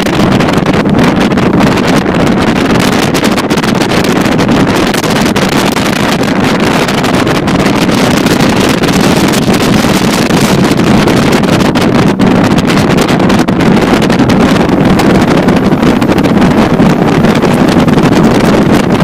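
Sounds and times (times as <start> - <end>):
motorboat engine running: 0.0 - 19.0
wind buffeting microphone: 0.0 - 19.0.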